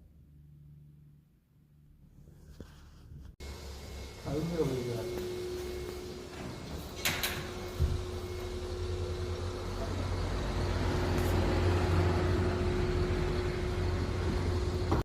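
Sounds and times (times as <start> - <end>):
low steady hum: 0.0 - 15.0
thin high whine: 3.4 - 15.0.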